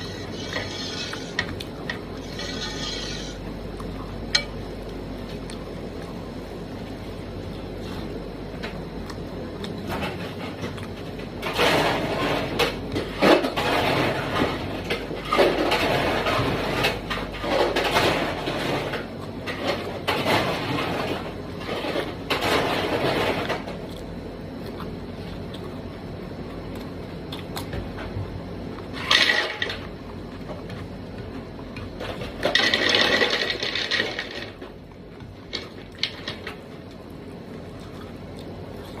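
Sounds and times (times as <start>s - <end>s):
noisy chewing: 0.0s - 13.2s, 14.9s - 29.0s, 34.8s - 39.0s.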